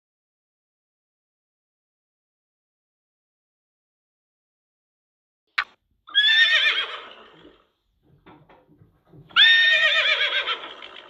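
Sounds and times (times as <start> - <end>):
horse whinnying: 6.1 - 7.7, 9.3 - 11.0.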